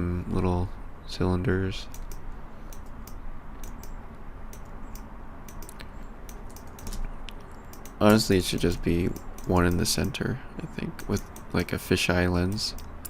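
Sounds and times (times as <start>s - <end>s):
keyboard and mouse clicks: 1.9s - 10.2s, 11.0s - 11.8s, 12.4s - 13.0s.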